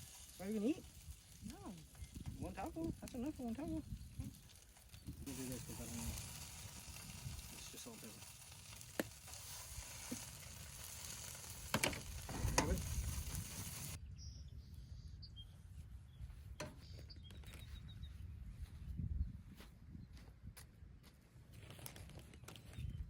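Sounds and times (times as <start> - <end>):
meat sizzling in a pan: 0.0 - 14.0.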